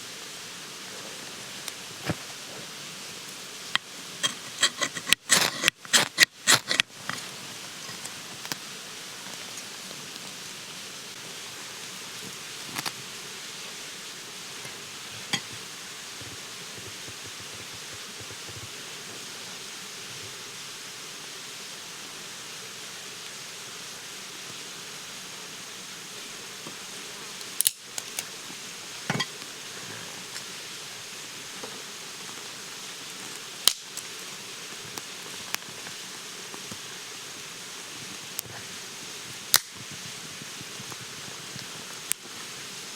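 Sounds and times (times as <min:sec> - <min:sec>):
outdoor background hiss: 0:00.0 - 0:42.9.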